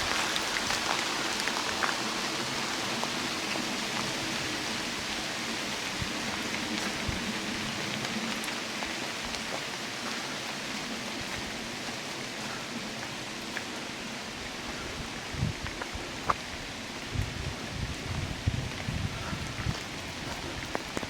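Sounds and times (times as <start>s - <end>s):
steady rain in forest: 0.0s - 21.0s.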